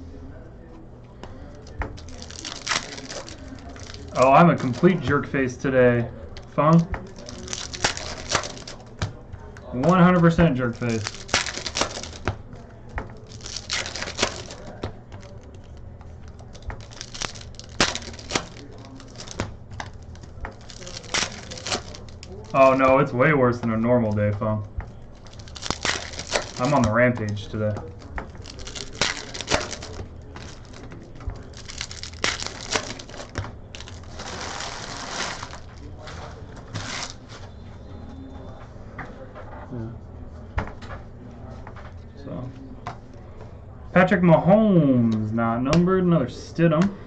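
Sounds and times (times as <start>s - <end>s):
foil wrappers crinkling: 1.3s - 37.4s
trading cards flipped through: 6.4s - 9.1s, 13.1s - 23.7s, 24.8s - 37.2s.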